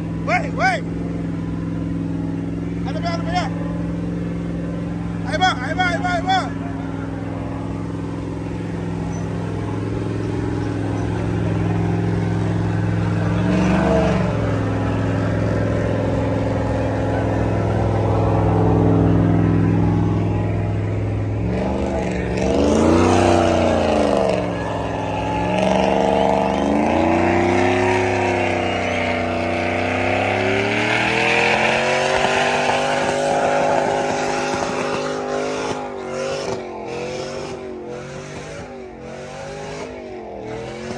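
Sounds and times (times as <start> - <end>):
truck engine revving: 0.0 - 40.9.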